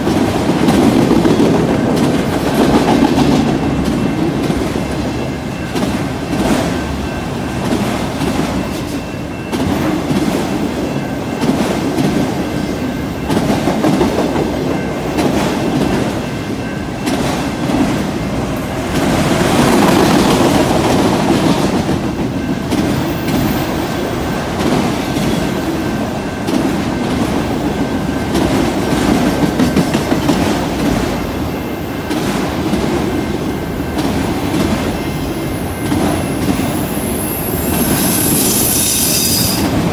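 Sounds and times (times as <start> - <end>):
train wheels clacking over rail joints: 0.0 - 12.4, 18.9 - 23.6, 24.4 - 31.2
freight train rolling past: 0.0 - 39.9.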